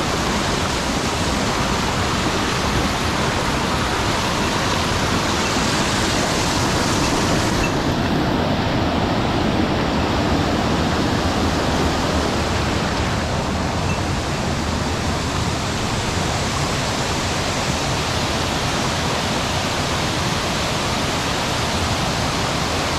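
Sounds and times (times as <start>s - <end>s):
water rushing over a dam: 0.0s - 22.9s.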